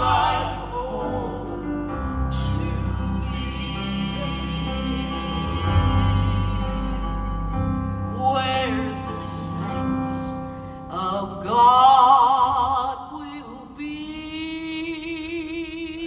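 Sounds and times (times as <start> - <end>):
instrumental accompaniment: 0.0 - 10.9
gospel singing: 0.0 - 16.0.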